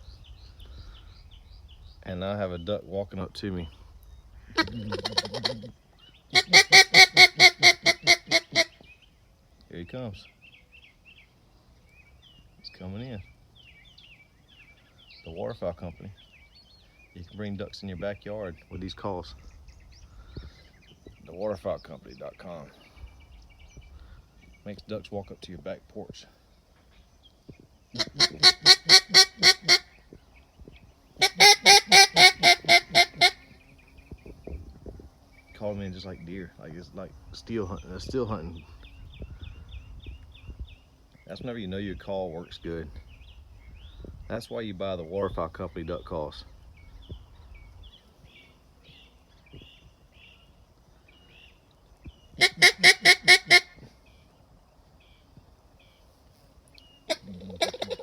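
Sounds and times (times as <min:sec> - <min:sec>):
small birds chirping faintly: 0:00.0 - 0:58.0
duck call quacks: 0:04.5 - 0:05.7, 0:06.3 - 0:08.8, 0:28.0 - 0:29.9, 0:31.2 - 0:33.4, 0:52.4 - 0:53.8, 0:57.1 - 0:58.0.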